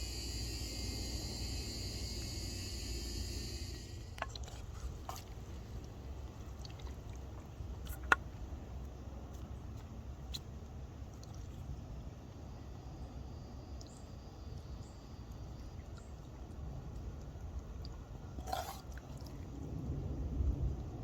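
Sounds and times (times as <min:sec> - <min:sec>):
insects chirring: 0:00.0 - 0:05.8
low outdoor rumble: 0:00.0 - 0:21.0.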